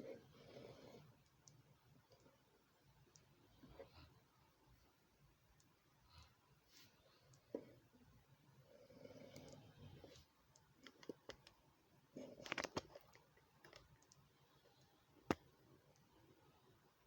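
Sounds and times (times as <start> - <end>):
faint clicks and taps: 1.2 - 2.4, 5.5 - 6.4, 9.3 - 16.2.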